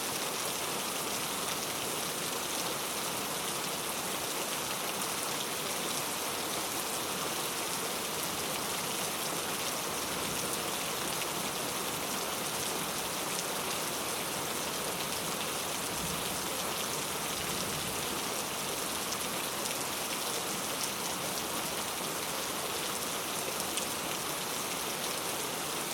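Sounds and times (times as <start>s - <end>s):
steady rain falling: 0.0s - 25.9s.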